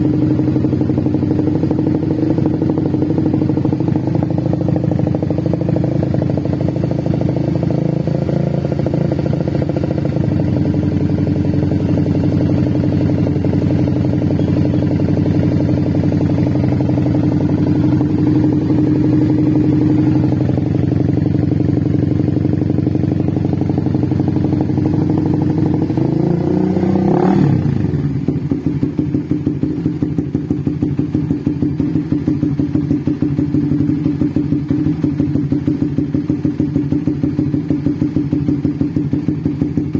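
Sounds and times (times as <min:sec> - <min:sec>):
motorcycle engine idling: 0:00.0 - 0:39.9
engine throttle blip: 0:14.2 - 0:20.5.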